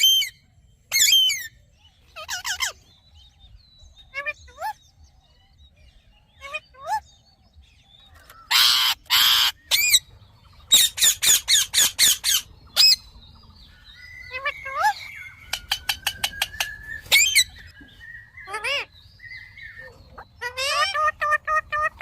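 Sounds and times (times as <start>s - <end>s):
parakeet squawking: 2.2s - 2.8s, 8.5s - 10.0s, 10.7s - 13.0s, 14.2s - 17.7s, 18.4s - 22.0s.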